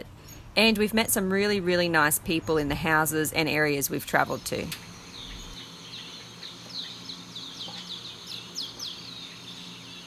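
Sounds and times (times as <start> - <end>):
flock of small birds chirping: 4.1 - 10.0.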